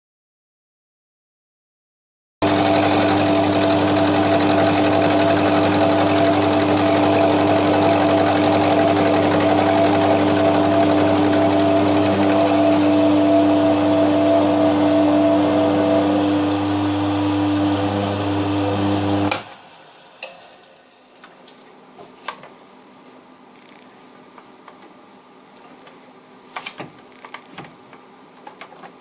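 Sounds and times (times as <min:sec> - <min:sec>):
milling machine cutting metal: 0:02.4 - 0:21.2.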